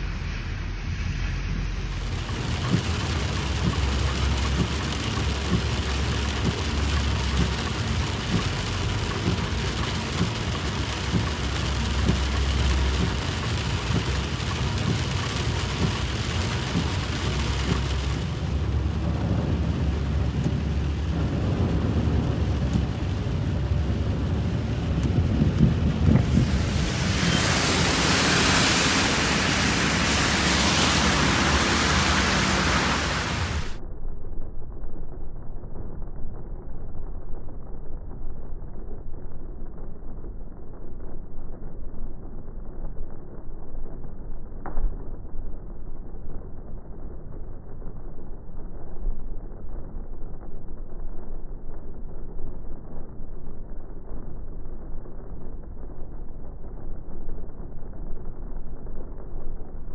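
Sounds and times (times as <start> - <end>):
heavy rain pouring: 0.0 - 33.8
low rumbling: 0.0 - 34.0.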